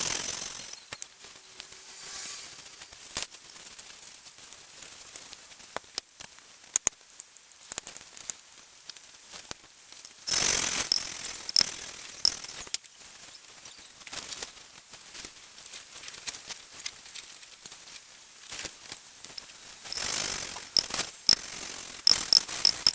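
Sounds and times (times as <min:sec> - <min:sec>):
metallic clicks and taps: 0:19.3 - 0:22.9
gritty grinding rasp: 0:19.4 - 0:22.9.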